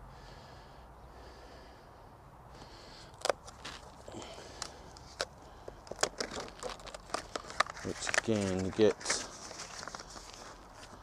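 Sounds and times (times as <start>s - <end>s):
clicks and knocks of objects handled: 3.2s - 11.0s.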